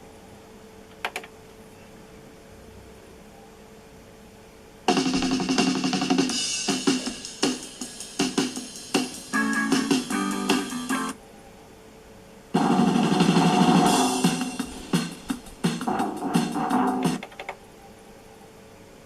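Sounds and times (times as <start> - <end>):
song with drum kit: 4.9 - 11.2, 12.6 - 17.3.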